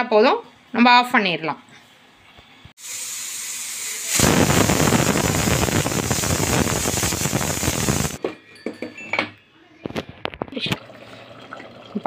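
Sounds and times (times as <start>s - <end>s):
pressure cooker whistling: 2.8s - 8.2s.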